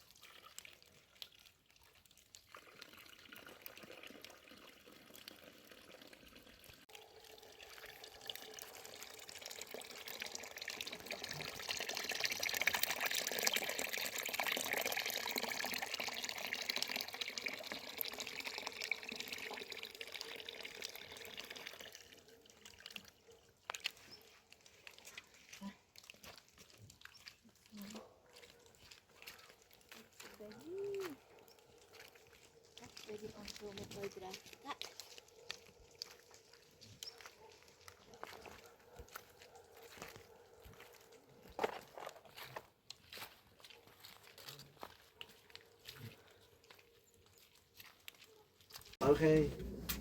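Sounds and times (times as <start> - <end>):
water pouring: 0.0 - 38.1, 48.8 - 50.0.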